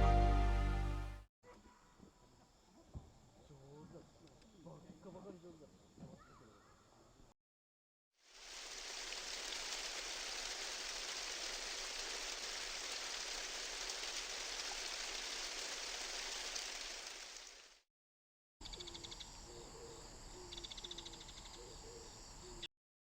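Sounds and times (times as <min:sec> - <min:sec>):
steady rain falling: 0:08.3 - 0:17.8.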